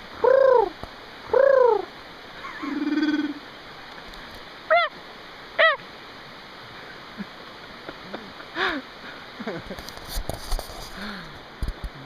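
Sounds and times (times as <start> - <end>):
rising and falling vocal calls: 0.2 - 3.4, 4.7 - 5.0, 5.6 - 5.8.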